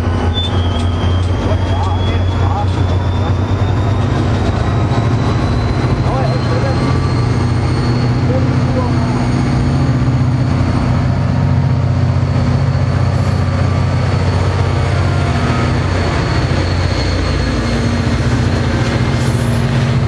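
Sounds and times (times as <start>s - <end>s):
low engine drone: 0.0s - 20.0s
train coaches rumbling over rails: 0.0s - 20.0s.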